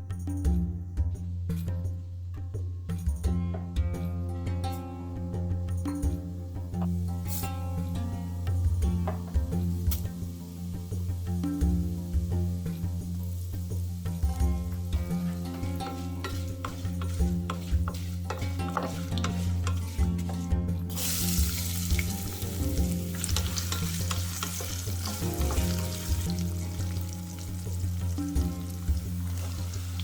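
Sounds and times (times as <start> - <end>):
background music: 0.0 - 30.0
oil sizzling in a pan: 6.7 - 30.0.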